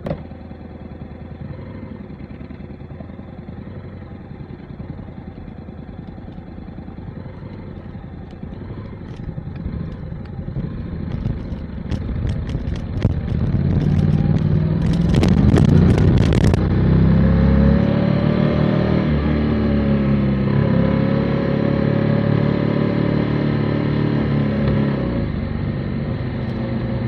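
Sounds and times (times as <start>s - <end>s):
motorcycle engine running: 0.0s - 27.0s
sharp clicks and ticks: 7.4s - 16.7s.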